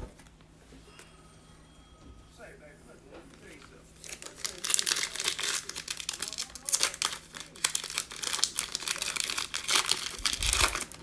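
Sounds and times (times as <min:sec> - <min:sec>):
plastic wrapper crinkling and tearing: 0:03.6 - 0:11.0.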